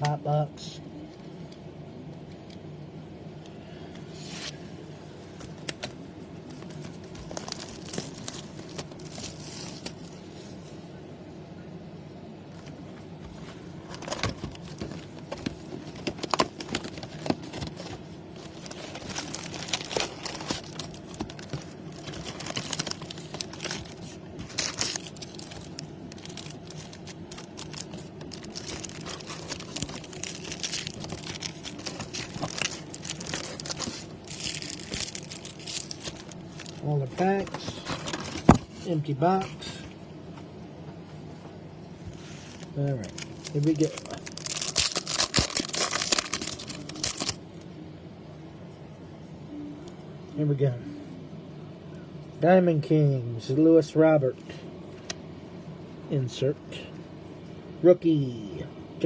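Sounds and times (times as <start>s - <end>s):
plastic wrapping crinkling and tearing: 6.5s - 10.1s, 13.9s - 38.7s, 42.3s - 47.4s.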